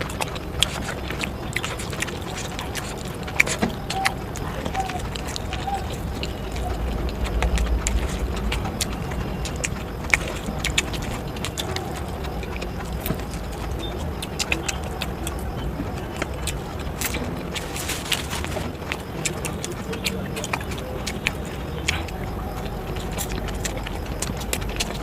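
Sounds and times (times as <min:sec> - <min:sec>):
chewing with crunches: 0:00.0 - 0:25.0
steady low rumble: 0:00.0 - 0:25.0.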